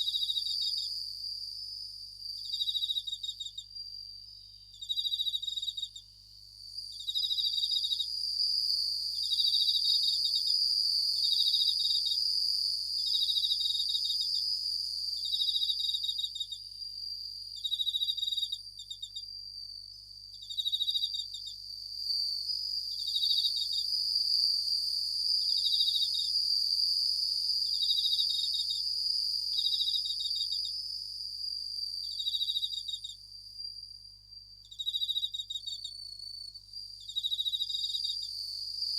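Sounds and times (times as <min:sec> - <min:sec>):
crickets trilling and chirping: 0:00.0 - 0:38.9.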